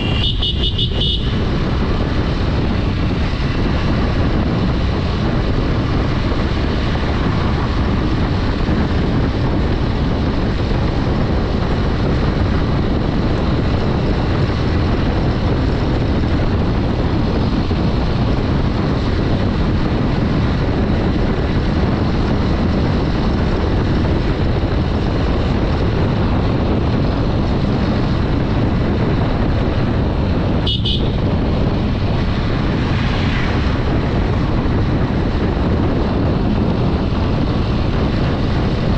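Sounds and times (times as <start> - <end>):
horn toot: 0.0 - 1.5, 30.6 - 31.2
motorcycle engine at speed: 0.0 - 38.9
road noise: 0.0 - 38.9
wind rush over microphone: 0.0 - 38.9.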